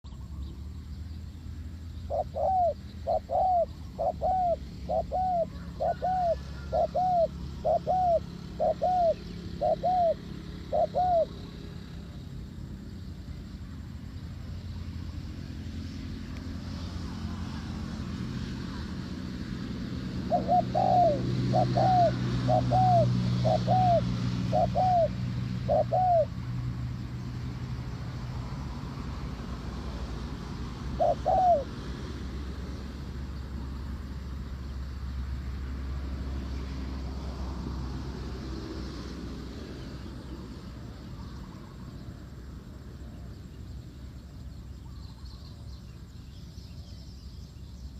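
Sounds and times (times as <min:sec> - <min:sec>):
dove cooing: 0:02.0 - 0:11.6, 0:19.7 - 0:26.4, 0:30.6 - 0:31.9.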